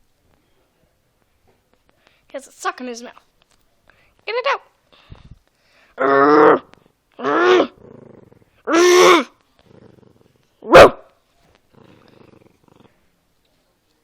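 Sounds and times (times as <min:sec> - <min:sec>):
dog growling: 0:06.0 - 0:10.9, 0:11.6 - 0:13.1
dog barking: 0:10.6 - 0:11.1.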